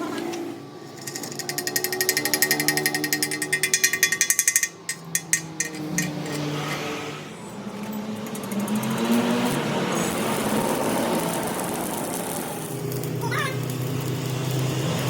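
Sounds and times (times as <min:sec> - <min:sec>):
rapid metallic strikes: 0:01.0 - 0:06.6.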